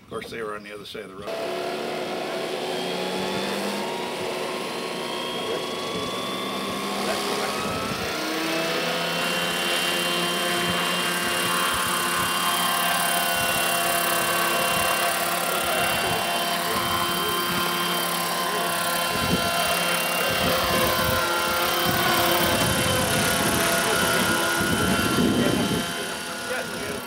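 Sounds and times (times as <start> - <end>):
model helicopter rotor whining: 1.2 - 27.0.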